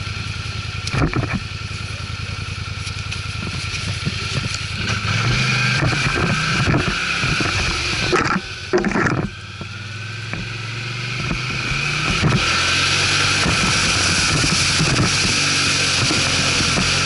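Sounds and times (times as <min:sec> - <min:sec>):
atv engine running: 0:00.0 - 0:17.0
wind on microphone: 0:11.2 - 0:17.0.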